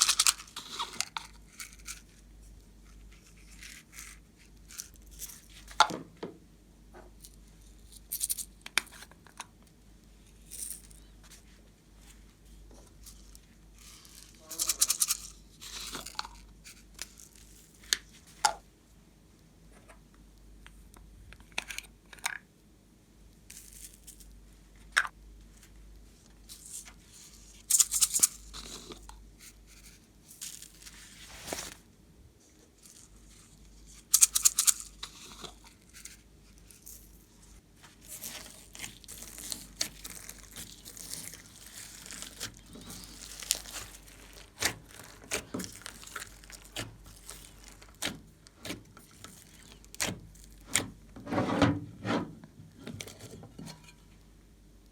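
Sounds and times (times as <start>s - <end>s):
slime crackling and popping: 38.2s - 50.8s.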